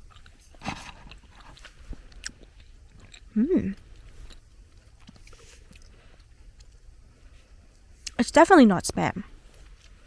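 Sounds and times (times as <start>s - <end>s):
person chewing: 0.0s - 6.8s
person humming mmm: 3.3s - 3.8s.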